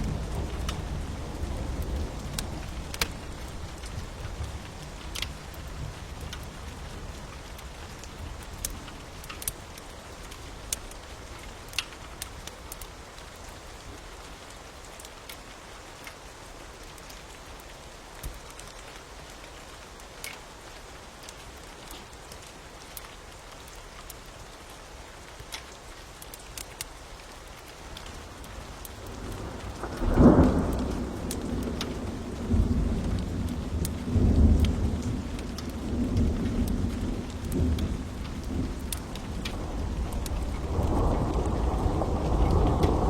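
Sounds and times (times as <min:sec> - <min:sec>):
fire popping and crackling: 0:00.0 - 0:12.9, 0:27.6 - 0:43.0
steady rain: 0:00.0 - 0:43.0.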